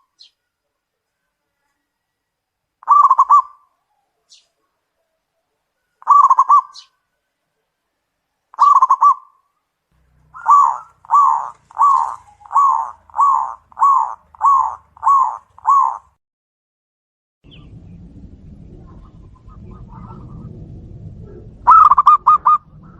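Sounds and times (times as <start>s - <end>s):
dove cooing: 2.8s - 4.3s, 5.0s - 6.9s, 8.6s - 9.3s, 10.3s - 16.1s, 18.8s - 22.9s.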